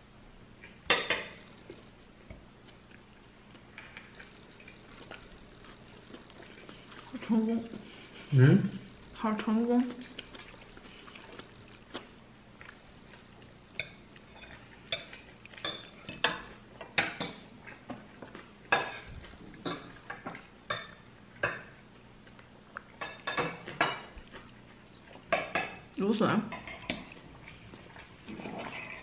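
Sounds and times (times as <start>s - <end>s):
cutlery clinking against dishes: 13.8s - 17.5s, 23.0s - 24.1s.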